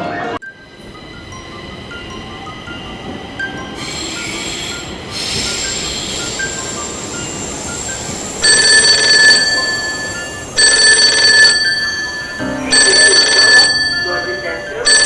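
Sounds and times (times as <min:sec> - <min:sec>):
telephone ringing: 0:06.3 - 0:15.0.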